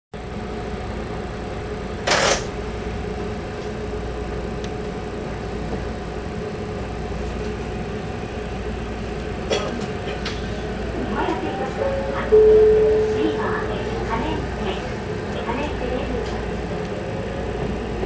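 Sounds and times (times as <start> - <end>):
train equipment hum: 0.2 - 18.0
faint steady tones: 11.1 - 14.8.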